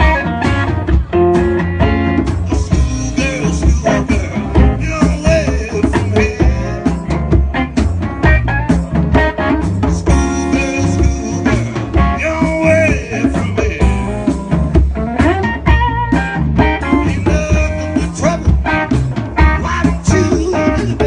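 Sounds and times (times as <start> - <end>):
guitar: 0.0 - 21.0
live band playing blues: 0.0 - 21.0
steady drum beat: 0.0 - 21.0.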